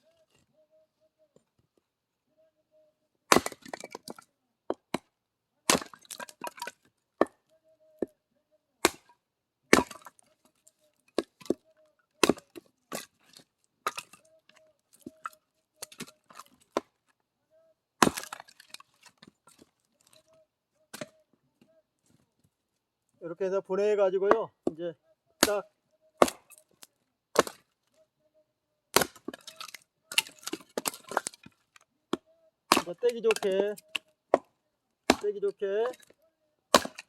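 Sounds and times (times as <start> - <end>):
axe chopping wood: 3.3 - 5.1, 5.7 - 7.4, 8.8 - 9.1, 9.7 - 10.3, 12.2 - 14.2, 18.0 - 19.6, 20.9 - 21.2, 25.4 - 27.7, 28.9 - 36.1, 36.7 - 37.0
wood cracking and splintering: 3.3 - 5.1, 5.7 - 7.4, 9.7 - 17.2, 18.0 - 21.2, 25.4 - 28.0, 28.9 - 34.5, 35.1 - 37.0.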